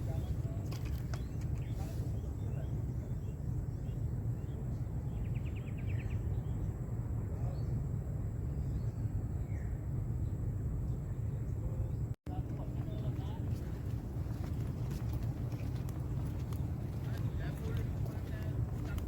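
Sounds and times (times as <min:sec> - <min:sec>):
steady low rumble: 0:00.0 - 0:19.0
faint bird chirps: 0:01.0 - 0:06.8.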